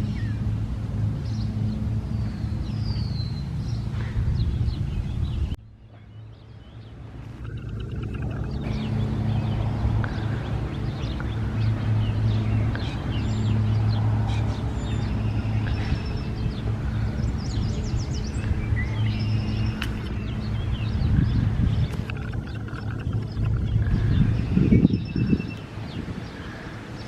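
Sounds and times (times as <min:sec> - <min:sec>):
small birds chirping: 0:02.1 - 0:27.0
steady low hum: 0:06.6 - 0:24.8.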